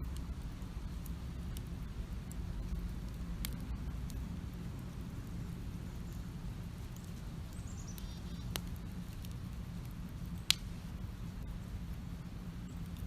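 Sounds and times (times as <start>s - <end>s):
campfire crackling: 0.0s - 13.0s
fire popping: 0.0s - 13.0s
low steady rumble: 0.0s - 13.0s
bird chirping: 7.5s - 8.6s.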